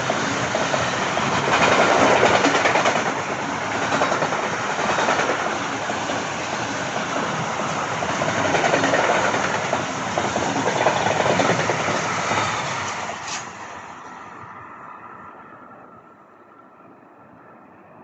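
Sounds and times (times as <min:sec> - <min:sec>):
train wheels clattering on rails: 0:00.0 - 0:13.6.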